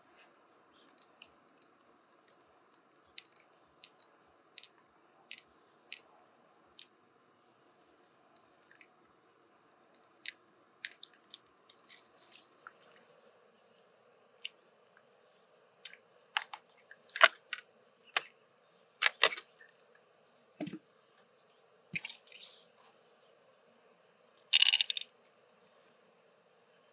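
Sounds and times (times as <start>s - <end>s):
shell clicking and cracking: 16.4s - 16.6s, 17.2s - 17.6s, 19.0s - 19.5s, 24.6s - 25.1s.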